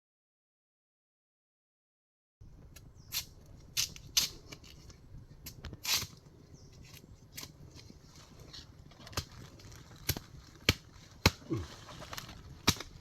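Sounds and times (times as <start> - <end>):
dry leaves and twigs crackling: 2.6 - 13.0
leaves rustling: 2.6 - 13.0.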